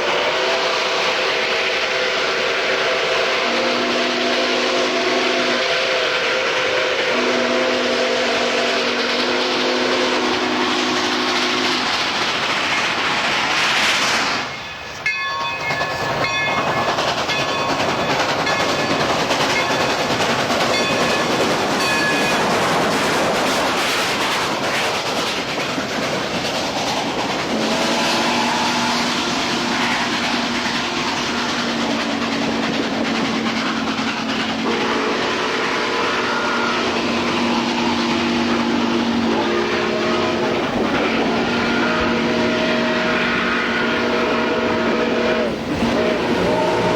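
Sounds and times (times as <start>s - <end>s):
train running past: 0.0s - 46.9s
train chime whistle: 20.7s - 22.7s, 27.6s - 30.1s, 34.6s - 46.9s.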